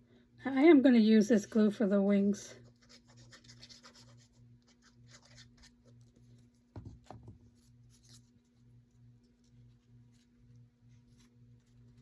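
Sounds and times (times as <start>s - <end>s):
low steady hum: 0.0s - 12.0s
soft knock: 6.7s - 7.4s.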